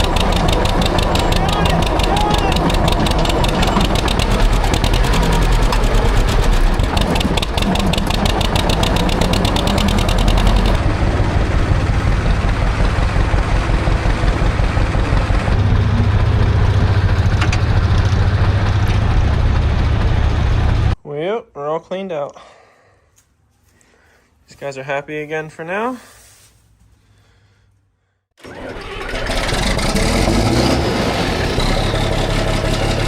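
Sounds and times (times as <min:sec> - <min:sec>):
tractor engine running: 0:00.0 - 0:21.0, 0:28.4 - 0:33.0.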